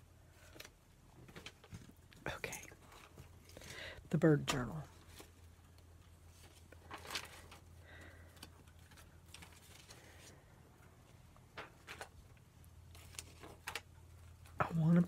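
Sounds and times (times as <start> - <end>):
low electrical hum: 0.0 - 15.0
paper rustling and tapping: 6.4 - 7.6, 12.9 - 14.6.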